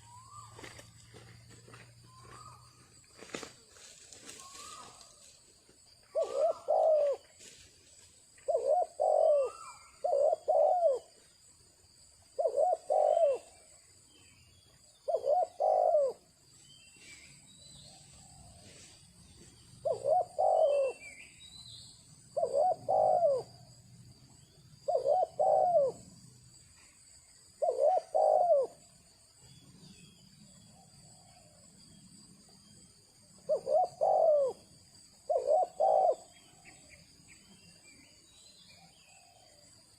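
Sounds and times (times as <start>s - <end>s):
dove cooing: 6.1s - 7.4s, 8.4s - 11.2s, 12.4s - 13.7s, 15.0s - 16.3s, 19.8s - 21.2s, 22.4s - 23.7s, 24.8s - 26.1s, 27.6s - 28.9s, 33.3s - 37.0s.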